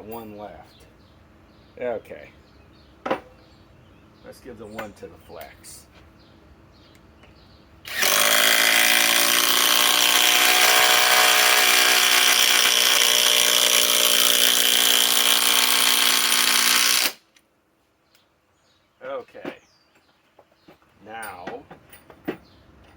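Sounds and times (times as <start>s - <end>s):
impact driver hammering: 7.9s - 17.2s.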